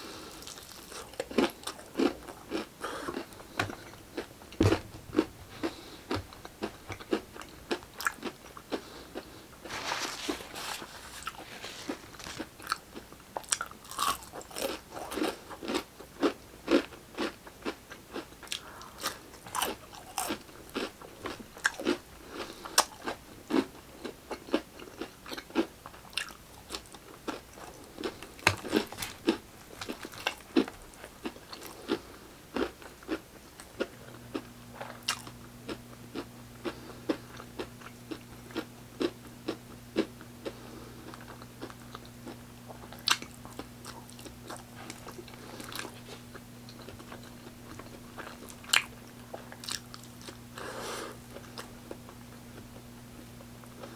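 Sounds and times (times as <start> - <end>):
low steady hum: 0.0 - 17.2, 25.8 - 53.9
crunching and chewing food: 0.0 - 53.9.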